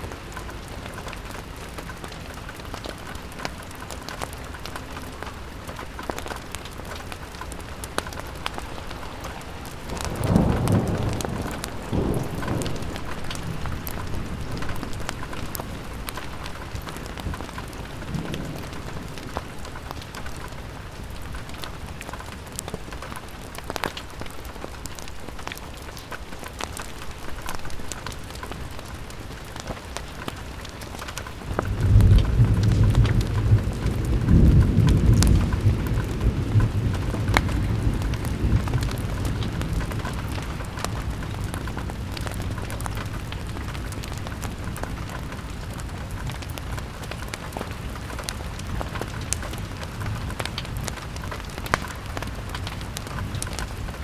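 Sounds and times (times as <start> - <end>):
rain pattering on a window: 0.0 - 54.0
low rolling thunder: 8.2 - 22.1, 31.4 - 54.0.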